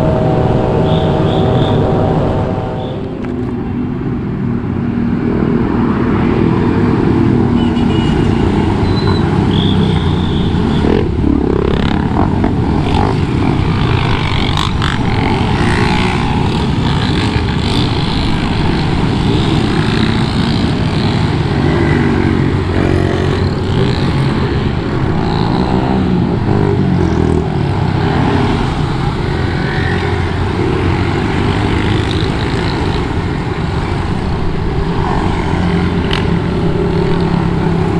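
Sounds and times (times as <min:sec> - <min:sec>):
wind noise: 0:00.0 - 0:09.5
road noise: 0:00.0 - 0:37.9
motorcycle engine revving: 0:07.3 - 0:33.5.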